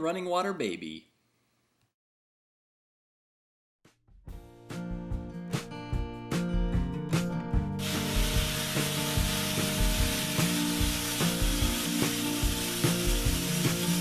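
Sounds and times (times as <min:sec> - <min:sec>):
background music with plucked guitar: 0:04.3 - 0:14.0
steady hiss: 0:07.8 - 0:14.0.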